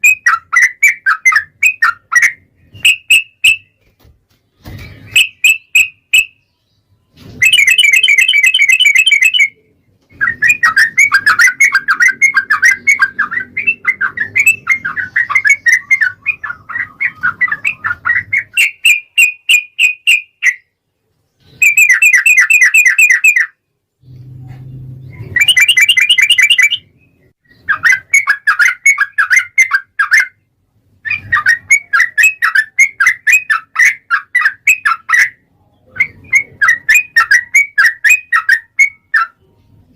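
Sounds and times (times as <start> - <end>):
bird singing bubbling chatter: 4.5 - 20.8, 24.9 - 39.5.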